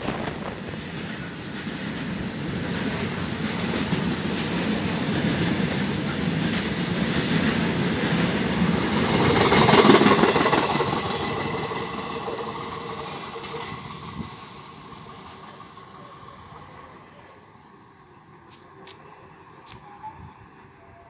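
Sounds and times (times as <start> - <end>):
freight train rushing past: 0.0 - 21.0
steel wheels rolling on rails: 0.3 - 20.0.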